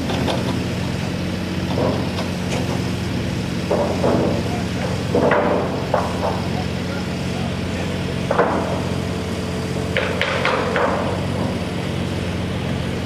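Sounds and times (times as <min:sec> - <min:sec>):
machine humming: 0:00.0 - 0:13.0
sharp knocks and clanks: 0:01.6 - 0:02.9, 0:03.6 - 0:06.9, 0:08.2 - 0:09.0, 0:09.9 - 0:11.7.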